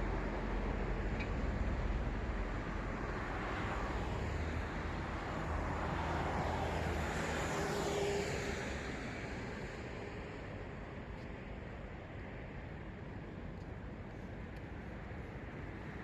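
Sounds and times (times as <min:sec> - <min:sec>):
city road traffic: 0:00.0 - 0:16.0.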